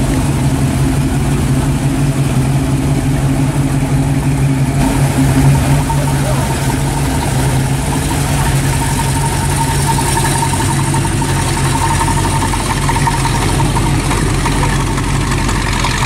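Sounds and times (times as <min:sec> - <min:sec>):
car engine idling: 0:00.0 - 0:16.0
thin steady whine: 0:00.0 - 0:16.0.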